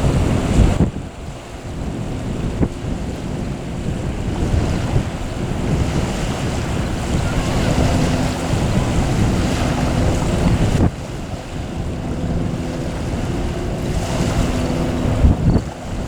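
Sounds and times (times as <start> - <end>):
jet airliner engine rumble: 0.0 - 16.0
wind buffeting microphone: 0.0 - 16.0.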